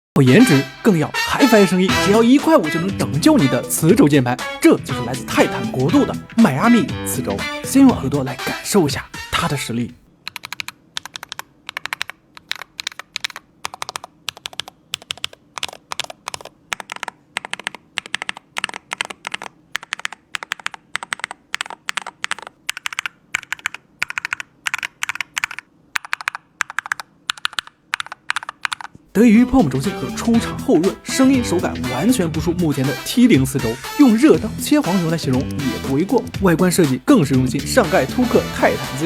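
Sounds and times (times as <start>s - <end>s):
crisp keyboard keystrokes: 10.2s - 29.0s.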